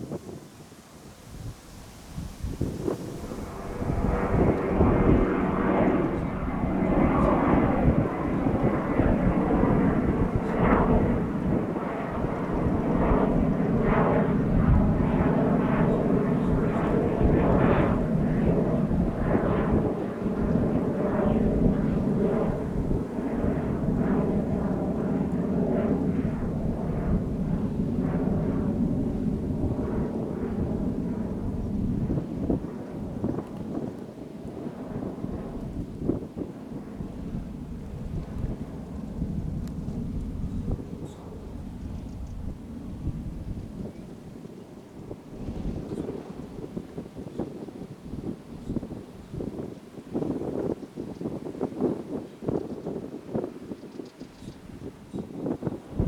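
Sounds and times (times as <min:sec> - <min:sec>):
jet airliner passing: 0:00.0 - 0:52.3.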